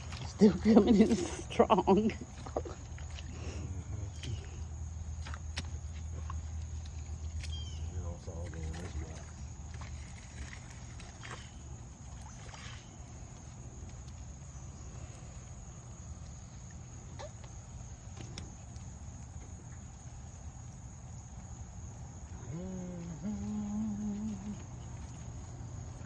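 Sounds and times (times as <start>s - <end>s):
floodwater rushing: 0.0s - 3.8s
high insect drone: 0.0s - 26.0s.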